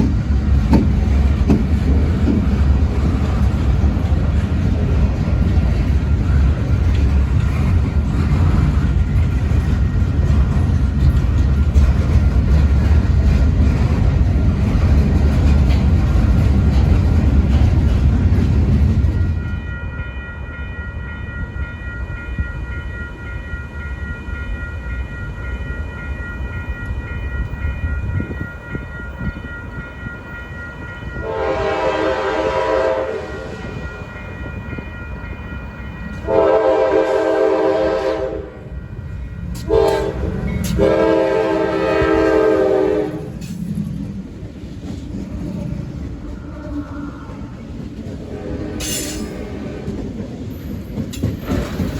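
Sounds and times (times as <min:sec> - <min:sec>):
train rumbling: 0:00.0 - 0:51.9
locomotive air horn blasts: 0:31.2 - 0:33.6, 0:36.2 - 0:38.7, 0:39.6 - 0:43.4.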